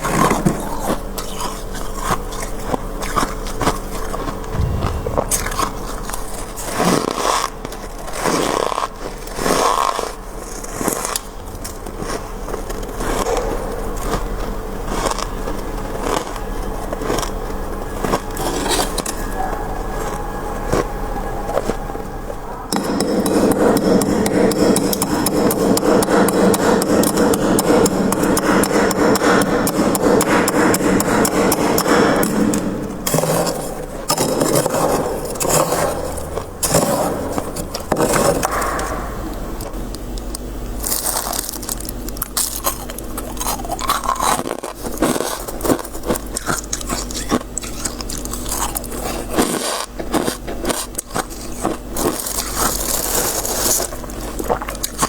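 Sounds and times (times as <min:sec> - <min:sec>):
frost scraping in a freezer: 0:40.8 - 0:55.0.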